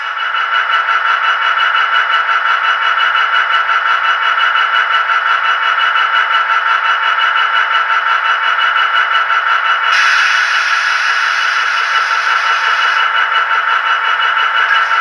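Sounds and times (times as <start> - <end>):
model locomotive running sound: 0.0 - 15.0.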